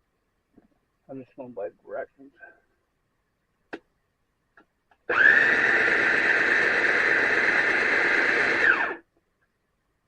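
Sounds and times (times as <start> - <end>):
food processor motor whining: 5.1 - 9.0.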